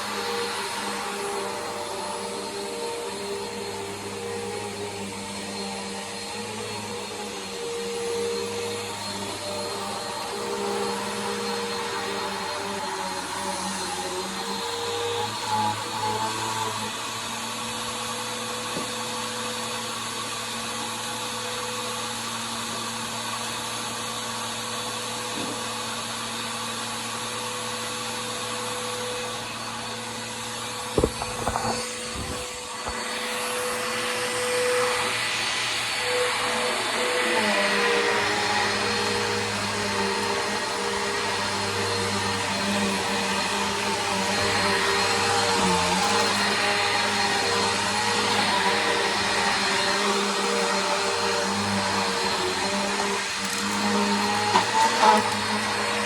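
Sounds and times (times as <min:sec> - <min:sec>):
vacuum cleaner running: 0:00.0 - 0:56.0
sharp knock and clatter: 0:31.0 - 0:32.9.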